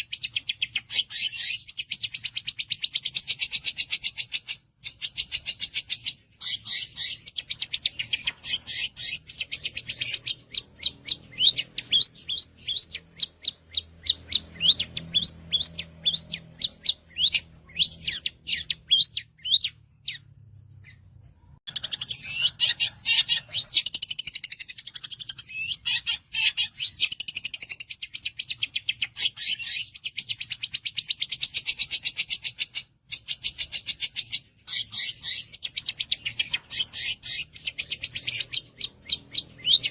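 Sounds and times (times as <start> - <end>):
shrike singing trills: 0.0 - 21.0, 21.7 - 39.9.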